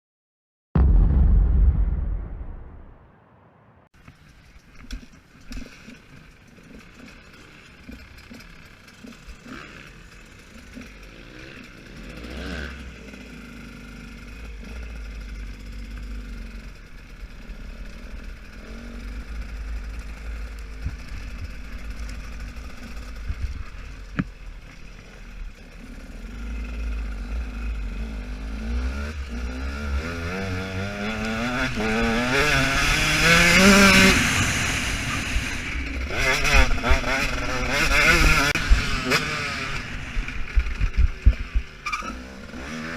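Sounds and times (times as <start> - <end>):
motocross engine revving: 8.2 - 24.1, 25.0 - 42.9.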